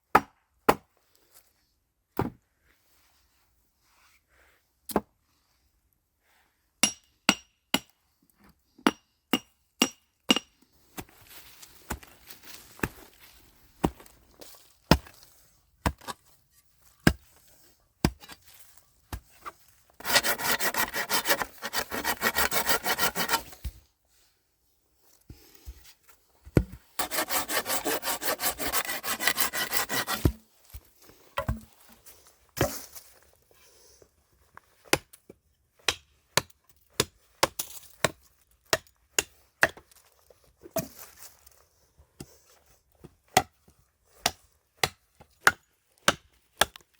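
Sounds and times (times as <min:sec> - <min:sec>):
hand saw cutting wood: 0:20.0 - 0:23.7, 0:27.0 - 0:30.4.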